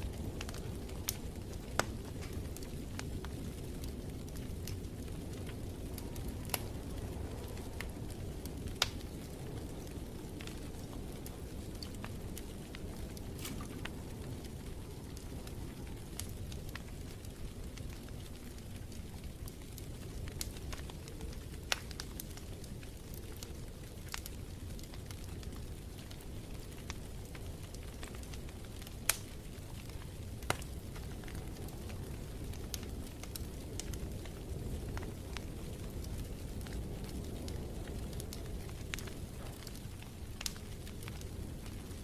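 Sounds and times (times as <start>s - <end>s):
fire pops and crackles: 0.0s - 42.0s
wood fire rumbling: 0.0s - 42.0s.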